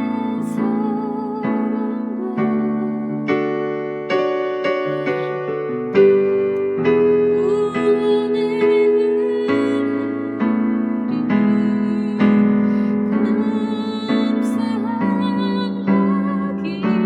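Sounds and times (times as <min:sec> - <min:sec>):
electric keyboard worship melody: 0:00.0 - 0:17.0.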